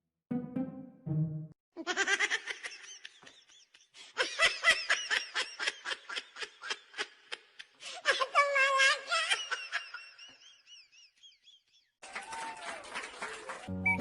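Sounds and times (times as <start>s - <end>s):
high-pitched laughter: 1.8s - 7.5s.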